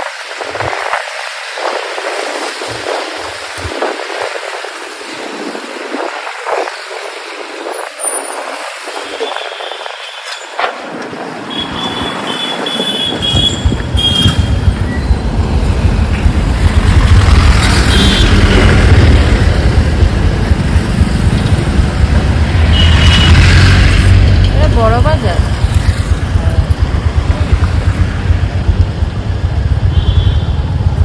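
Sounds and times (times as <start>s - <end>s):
wind and road noise: 0.0s - 31.0s
motorcycle engine rumble: 10.7s - 31.0s.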